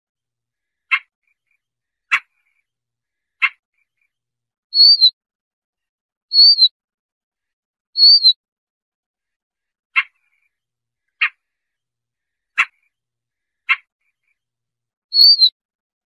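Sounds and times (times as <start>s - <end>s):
bird harsh calls: 4.8s - 5.1s, 6.3s - 6.7s, 8.0s - 8.4s, 15.1s - 15.5s
bird whistled notes: 4.8s - 5.1s, 6.3s - 6.7s, 8.0s - 8.4s, 15.1s - 15.5s.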